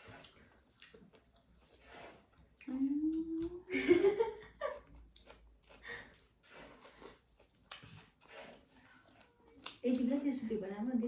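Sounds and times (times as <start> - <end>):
people eating clicks and smacks: 0.0 - 3.7, 4.8 - 10.8.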